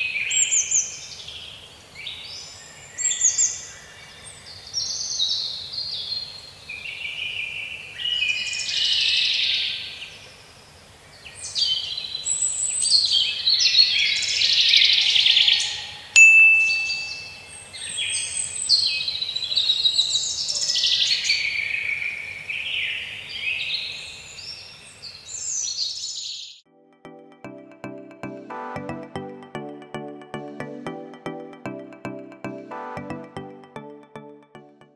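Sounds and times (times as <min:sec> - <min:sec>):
sharp click with ringing tone: 0:16.2 - 0:17.4.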